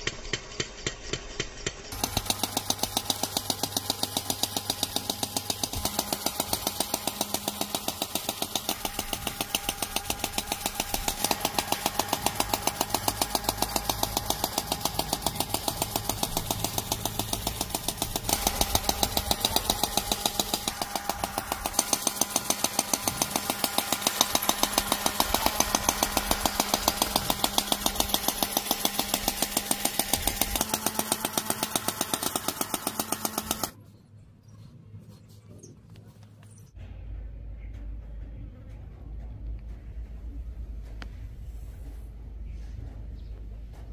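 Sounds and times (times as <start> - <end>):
small machine gears rattling: 0.0 - 33.8.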